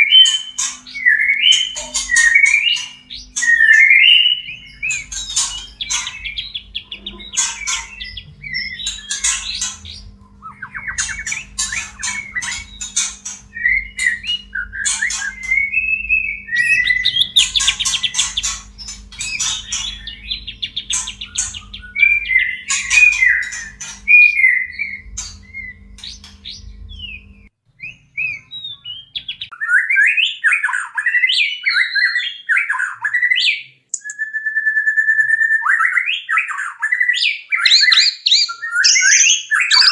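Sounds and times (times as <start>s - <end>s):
bird whistled notes: 0.0s - 26.3s, 26.9s - 39.9s
bird rattling chatter: 0.2s - 3.7s, 4.8s - 10.0s, 10.9s - 15.6s, 16.6s - 21.9s.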